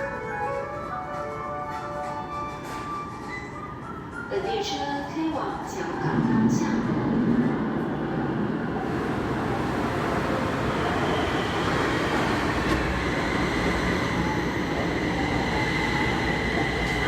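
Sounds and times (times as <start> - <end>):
metro train rumbling: 0.0 - 17.0
high thin train whine: 8.8 - 17.0.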